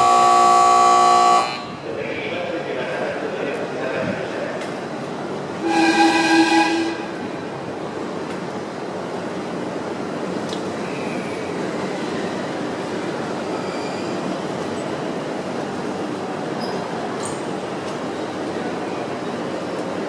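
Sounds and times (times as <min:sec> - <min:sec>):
train horn: 0:00.0 - 0:01.8, 0:05.6 - 0:07.2
train wheels and motors running: 0:00.0 - 0:20.0
faint wheel squeals: 0:13.4 - 0:14.4.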